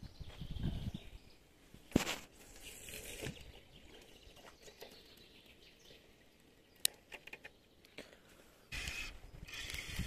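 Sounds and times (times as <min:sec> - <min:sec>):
faint bird chirps: 0:00.0 - 0:01.5.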